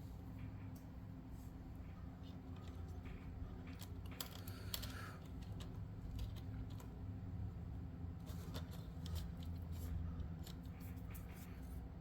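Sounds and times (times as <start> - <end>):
steady low hum: 0.0 - 12.0
clicks of small plastic parts: 2.6 - 7.0.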